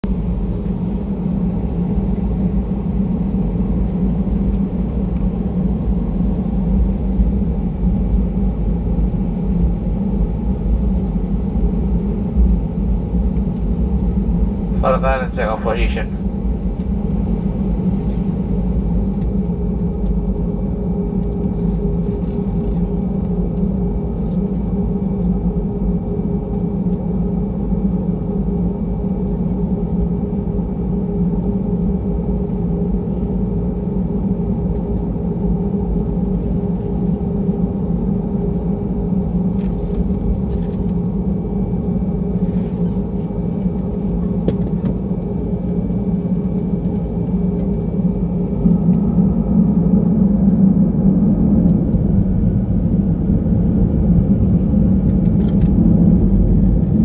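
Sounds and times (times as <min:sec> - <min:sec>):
airplane engine rumble: 0:00.0 - 0:57.0.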